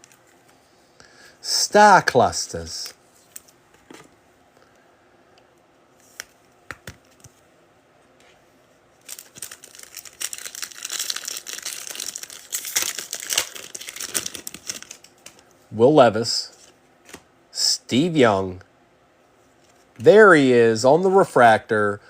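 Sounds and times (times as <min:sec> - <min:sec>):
foil pack crinkling and tearing: 0:09.0 - 0:15.4.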